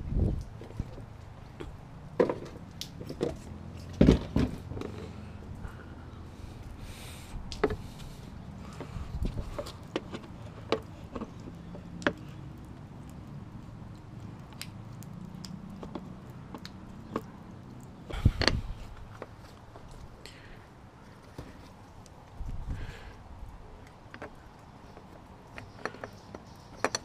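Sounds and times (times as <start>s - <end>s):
light clicks and knocks: 7.5s - 20.4s, 23.8s - 27.0s.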